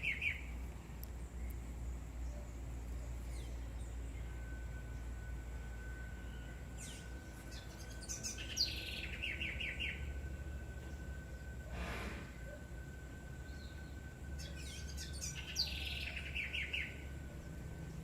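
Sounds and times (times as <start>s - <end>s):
bird chirping: 0.0s - 18.0s
low steady rumble: 0.0s - 18.0s.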